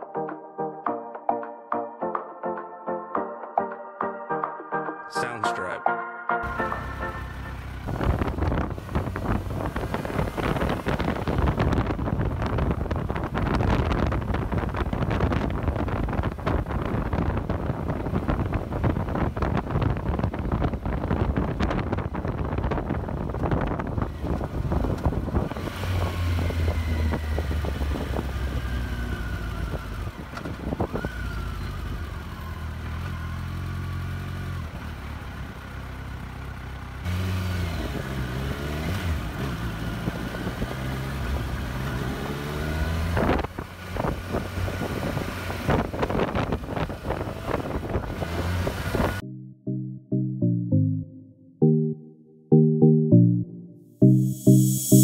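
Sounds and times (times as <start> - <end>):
motorcycle engine: 6.4 - 49.2
wind buffeting microphone: 7.8 - 31.6, 42.8 - 49.2
motorcycle engine idling: 29.1 - 37.1.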